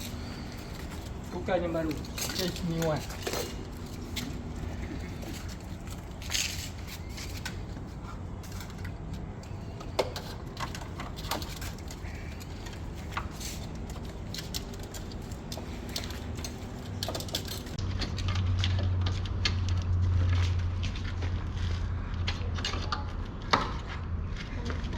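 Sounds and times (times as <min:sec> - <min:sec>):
hand tools clicking and knocking: 0:00.0 - 0:19.7
steady low hum: 0:00.0 - 0:24.9.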